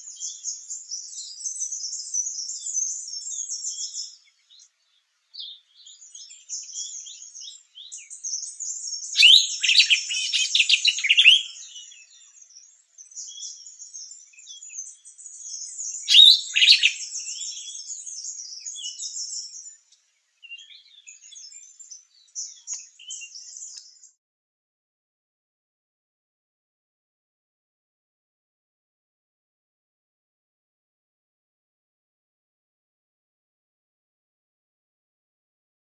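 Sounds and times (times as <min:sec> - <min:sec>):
high bird twittering: 0:08.4 - 0:12.0, 0:15.5 - 0:19.7
bird rapid call notes: 0:09.2 - 0:11.4, 0:16.1 - 0:17.0.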